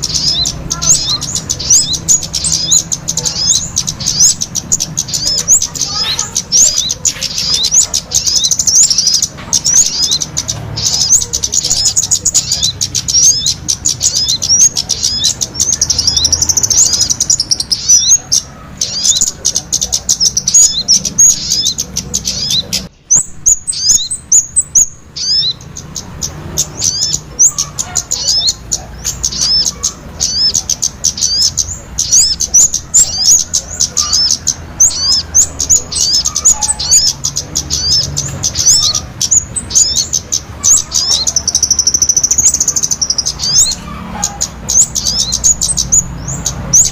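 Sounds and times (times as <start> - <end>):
small songbirds chirping: 0.0 - 46.9.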